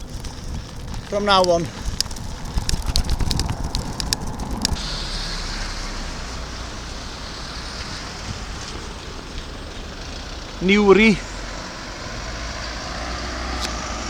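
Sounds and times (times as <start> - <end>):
sharp clicks: 0.0 - 4.8, 13.5 - 13.9
wind rumble on microphone: 0.0 - 10.6
road noise: 0.0 - 14.0.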